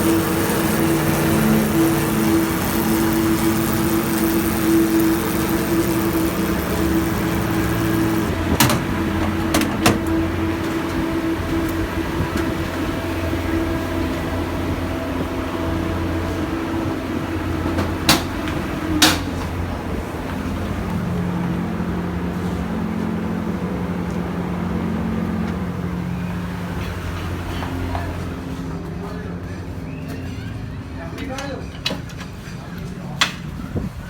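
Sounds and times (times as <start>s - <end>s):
motorcycle engine running: 0.0s - 26.3s.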